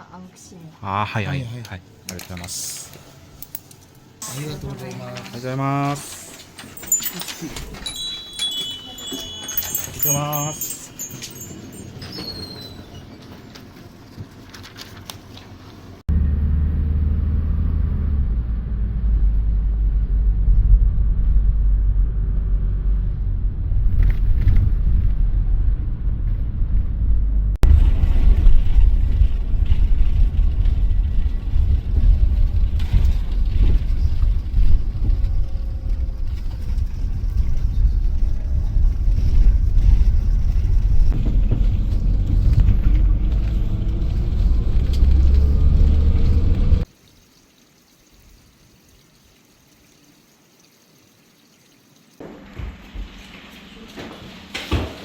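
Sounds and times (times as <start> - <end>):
bus engine and road rumble: 1.1 - 46.9.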